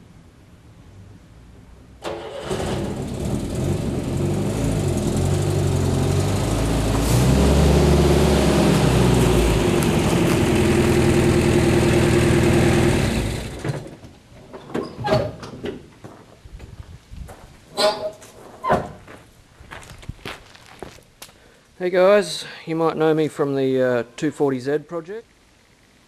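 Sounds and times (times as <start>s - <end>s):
car engine revving: 2.1s - 13.6s.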